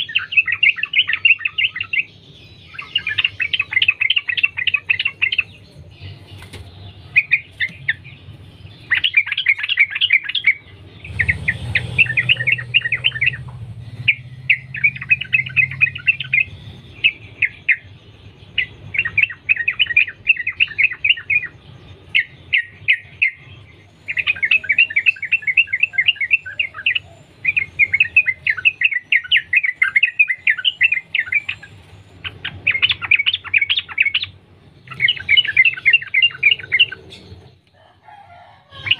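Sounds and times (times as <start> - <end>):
bird singing chattering runs: 0.0 - 37.6
low rumble: 10.6 - 18.4.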